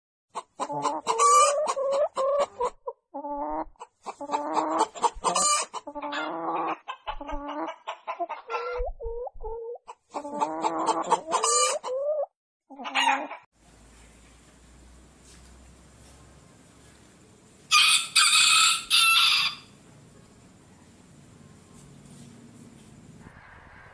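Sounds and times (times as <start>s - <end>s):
hen cackling: 0.4s - 8.9s, 9.5s - 13.5s, 17.7s - 19.8s.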